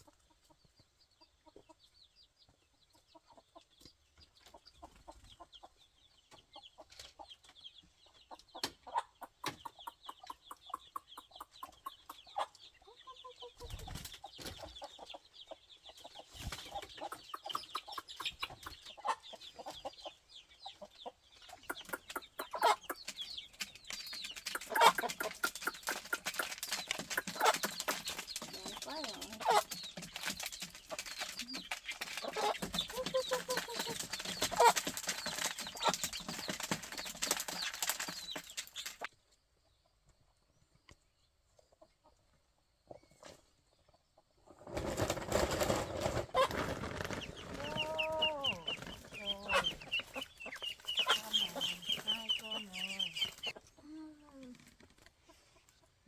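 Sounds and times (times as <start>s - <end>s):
chickens clucking: 0.0s - 56.0s
sharp clicks and scuffles: 21.7s - 39.1s.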